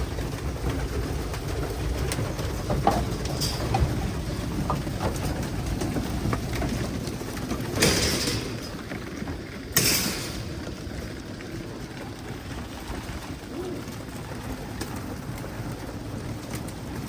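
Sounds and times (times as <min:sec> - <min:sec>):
pigeons cooing: 0:13.3 - 0:14.3.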